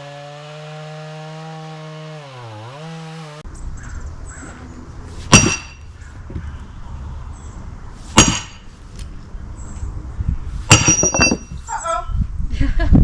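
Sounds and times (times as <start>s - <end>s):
sledgehammer striking steel wedge: 5.3s - 5.9s, 8.1s - 8.7s, 10.7s - 11.6s.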